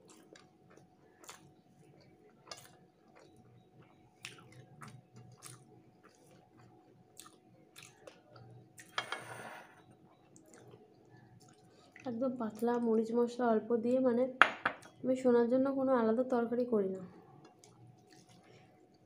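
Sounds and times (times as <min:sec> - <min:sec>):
person chewing: 0:00.0 - 0:09.0, 0:10.3 - 0:12.0, 0:17.4 - 0:19.0.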